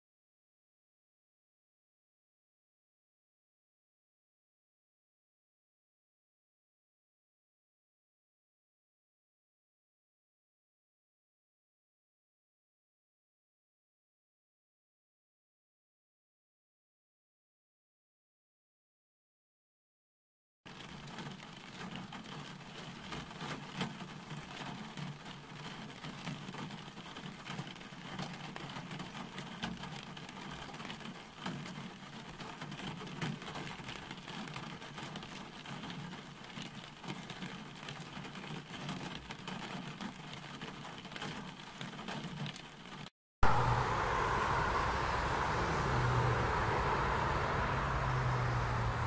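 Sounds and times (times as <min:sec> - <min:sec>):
rain drops tapping: 0:20.7 - 0:43.1
low hum: 0:43.4 - 0:49.0
road traffic noise: 0:43.4 - 0:49.0.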